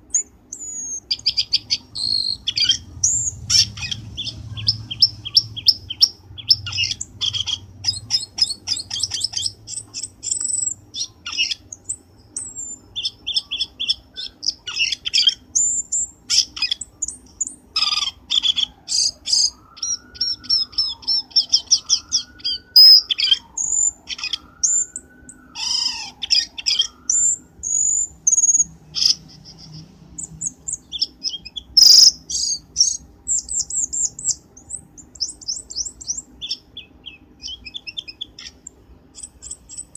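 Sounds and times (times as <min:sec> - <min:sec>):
bird chirps and trills: 0:00.0 - 0:39.9
low wavering whistle: 0:19.3 - 0:26.0.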